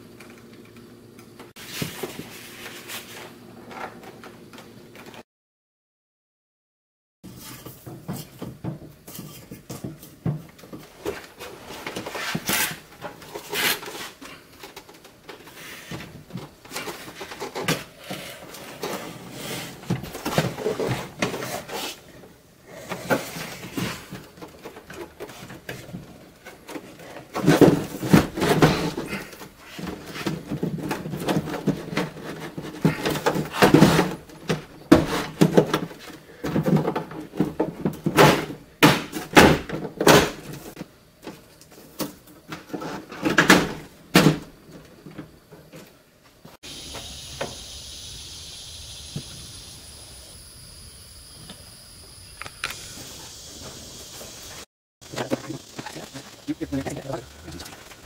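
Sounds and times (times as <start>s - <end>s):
plastic casing rustling and scraping: 7.3s - 22.3s, 22.9s - 38.4s.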